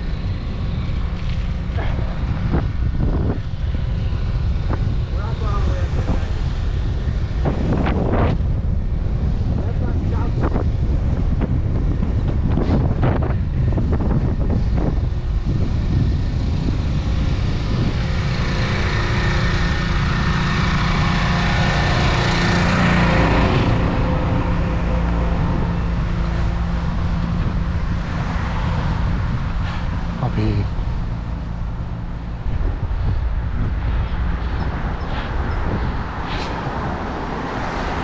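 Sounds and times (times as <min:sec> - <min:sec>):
road traffic: 0:00.0 - 0:38.0
wind rumbling on microphone: 0:00.0 - 0:38.0
motor vehicle passing close: 0:15.2 - 0:38.0.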